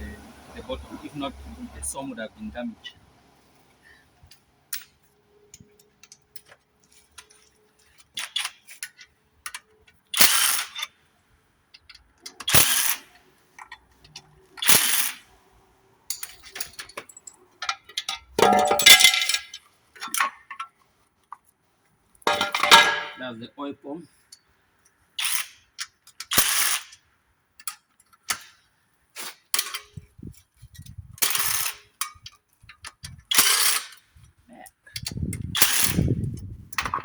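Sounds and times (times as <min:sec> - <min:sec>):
metal engine parts clinking: 0:16.1 - 0:20.8, 0:22.3 - 0:23.2.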